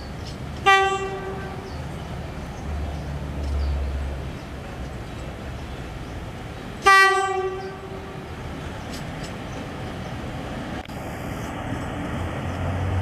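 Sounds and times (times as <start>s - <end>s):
train horn blast: 0.6s - 1.7s, 6.8s - 8.3s.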